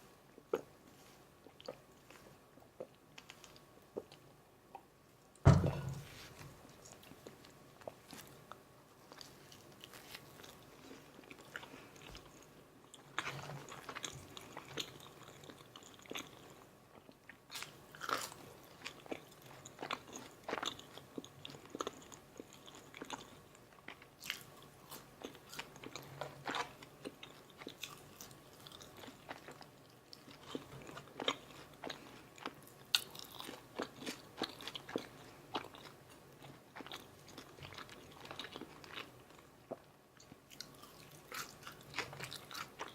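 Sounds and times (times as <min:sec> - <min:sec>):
wet chewing: 0:23.9 - 0:42.9.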